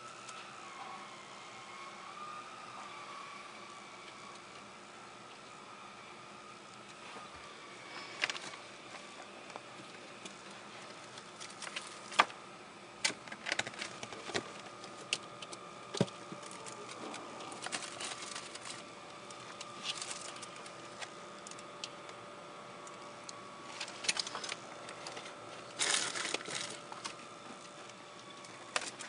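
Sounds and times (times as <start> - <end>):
faint steady hum: 0.0 - 29.0
ferret rummaging: 13.0 - 21.7, 23.7 - 27.8.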